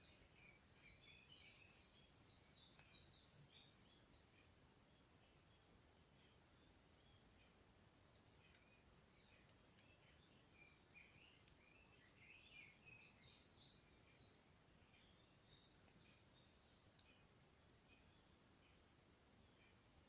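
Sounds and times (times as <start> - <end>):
faint birdsong chirps: 0.0 - 20.0
faint ticks: 7.8 - 12.8, 15.7 - 19.9.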